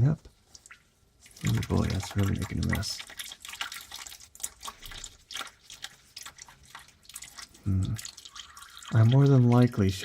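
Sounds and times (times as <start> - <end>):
oil dripping into a pan: 0.4 - 10.0.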